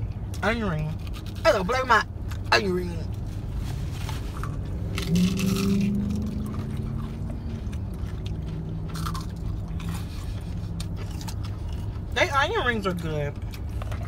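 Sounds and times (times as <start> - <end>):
crunchy chewing: 0.1 - 1.5, 3.1 - 14.0
person humming mmm: 5.0 - 6.9.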